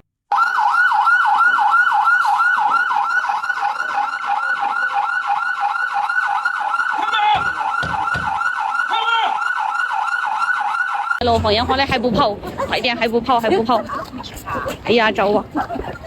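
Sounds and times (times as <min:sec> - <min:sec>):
police siren yelping: 0:00.3 - 0:11.2
low thuds: 0:07.3 - 0:08.5, 0:11.2 - 0:13.8.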